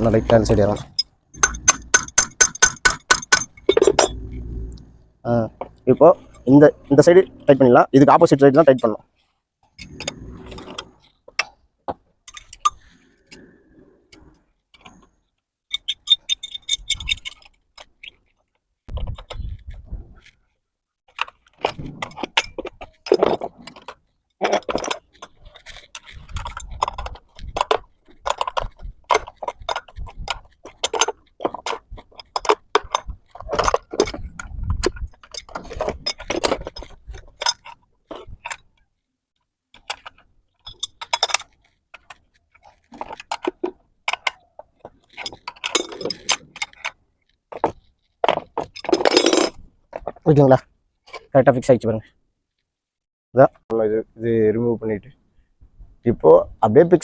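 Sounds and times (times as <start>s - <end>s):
spanner clinking on bolts: 0.0s - 4.5s, 15.7s - 18.1s.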